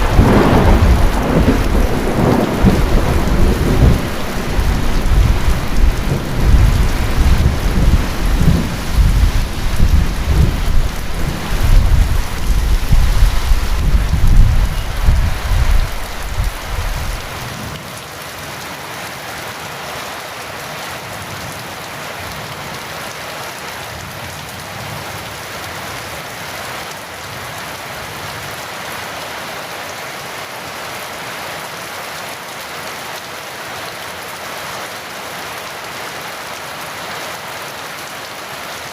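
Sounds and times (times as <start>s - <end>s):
thunder rumbling: 0.0s - 17.4s
heavy rain falling: 0.0s - 38.9s.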